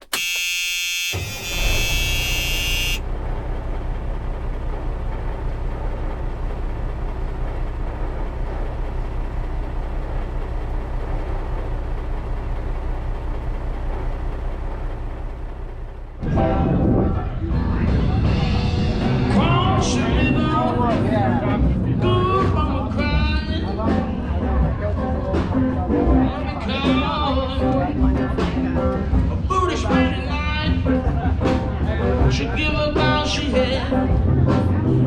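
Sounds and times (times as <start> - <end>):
high horn-like tone: 0.0 - 3.1
car engine rumbling: 0.0 - 17.8, 18.8 - 28.4.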